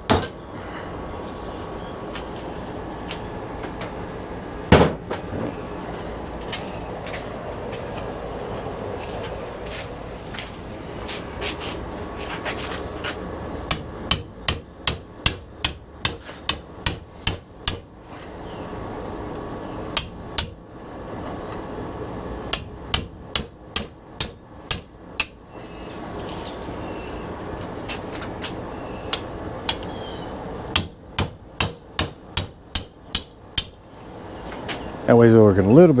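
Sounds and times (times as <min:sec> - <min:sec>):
hammer striking metal: 0:13.7 - 0:17.9, 0:20.0 - 0:20.6, 0:22.5 - 0:25.4, 0:30.7 - 0:33.8.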